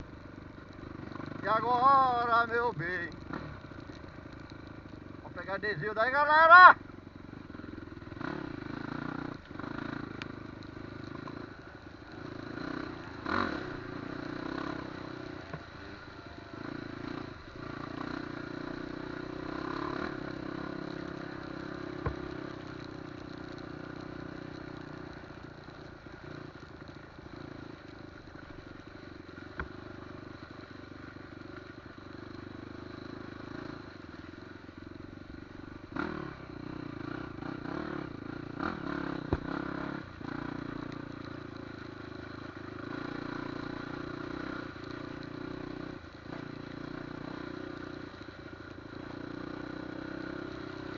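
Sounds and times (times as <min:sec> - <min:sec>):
motorcycle engine running: 0:00.0 - 0:50.9
knocks and rattles from bike: 0:12.2 - 0:30.5, 0:36.0 - 0:50.9.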